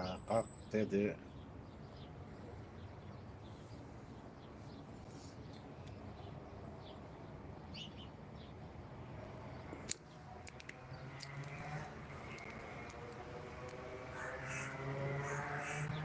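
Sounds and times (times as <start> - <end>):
small birds chirping: 0.0 - 16.0
sharp clicks: 9.8 - 13.8.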